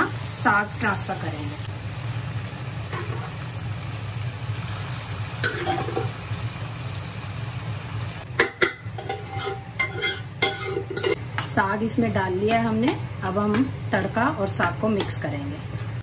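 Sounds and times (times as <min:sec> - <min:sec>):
oil frying in a pan: 0:00.0 - 0:11.7
metal ladle scraping pan: 0:08.4 - 0:11.2.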